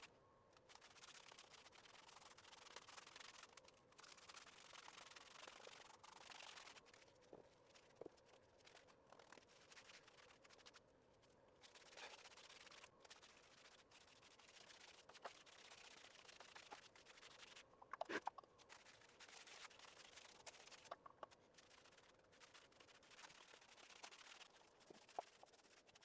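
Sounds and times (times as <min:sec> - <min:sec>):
paintbrush scratching on masonry: 0:11.6 - 0:26.0.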